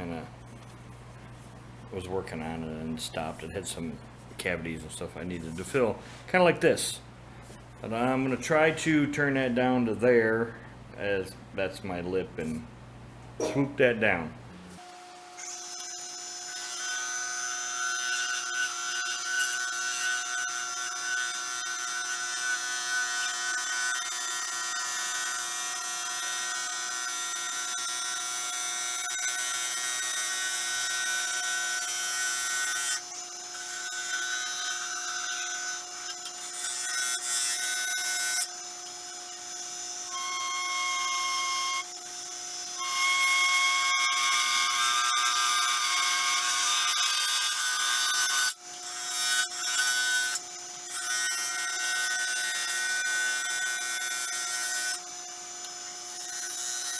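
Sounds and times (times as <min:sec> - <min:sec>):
wood lathe motor whine: 0:14.6 - 0:56.9.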